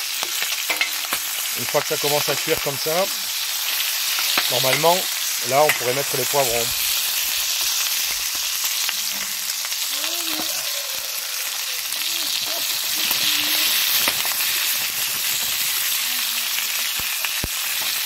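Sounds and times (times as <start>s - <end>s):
chicken sizzling in hot oil: 0.0s - 18.0s.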